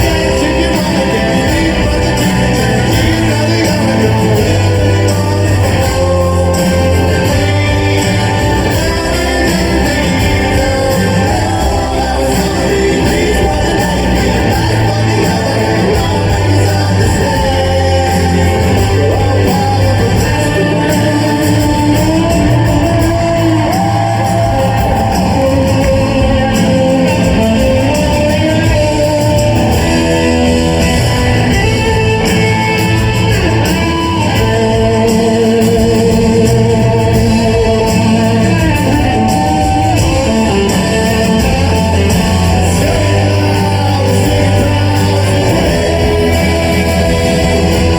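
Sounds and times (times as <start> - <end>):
electric guitars: 0.0 - 47.9
live rock band: 0.0 - 47.9
person singing: 0.0 - 47.9.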